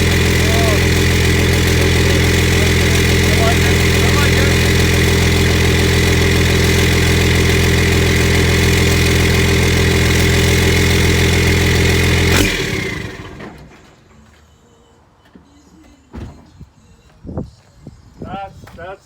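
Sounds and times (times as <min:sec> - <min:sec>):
diesel pickup idling: 0:00.0 - 0:13.8.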